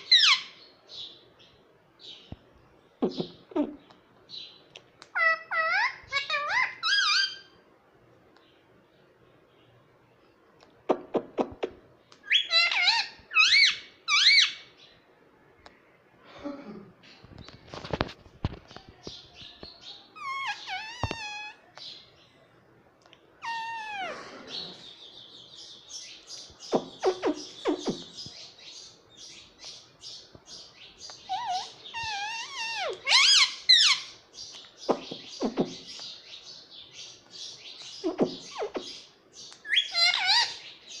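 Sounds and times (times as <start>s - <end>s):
parrot chattering and squawking: 0.0s - 0.6s, 5.0s - 7.6s, 10.9s - 14.6s, 20.2s - 21.6s, 23.4s - 24.9s, 26.6s - 28.2s, 31.2s - 34.2s, 38.0s - 40.7s.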